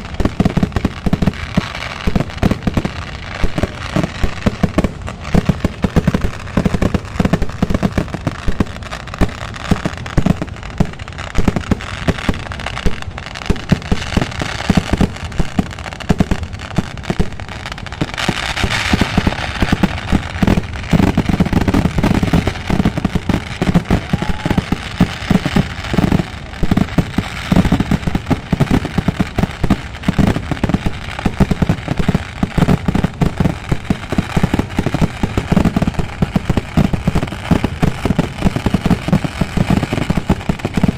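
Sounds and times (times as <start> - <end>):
fireworks banging and crackling: 0.0 - 40.9.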